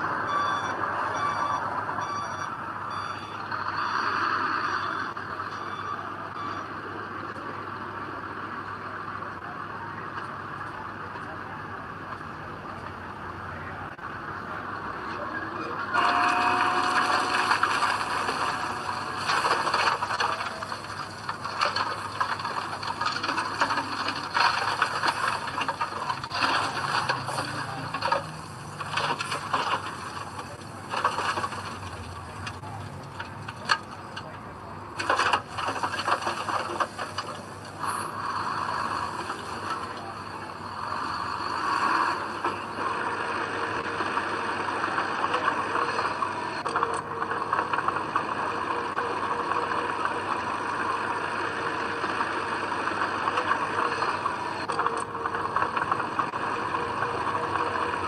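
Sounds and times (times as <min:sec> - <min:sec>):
bulldozer tracks clattering: 0:00.0 - 0:58.0
blade scraping soil: 0:16.0 - 0:32.1.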